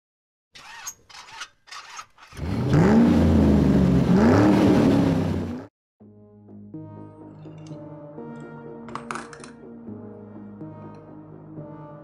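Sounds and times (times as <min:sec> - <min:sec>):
car engine revving: 0:02.3 - 0:05.7.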